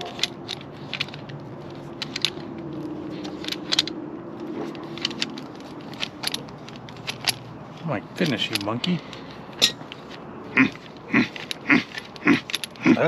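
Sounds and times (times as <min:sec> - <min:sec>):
metallic clicks of hand tools: 0:00.0 - 0:07.4, 0:10.7 - 0:13.0.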